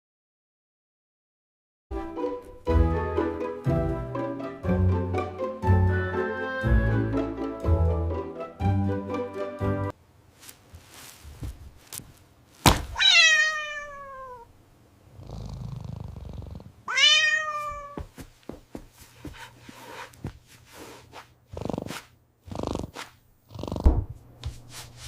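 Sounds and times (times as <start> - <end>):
sharp thump: 12.6 - 13.0
cat meowing: 13.0 - 14.5, 16.9 - 18.1.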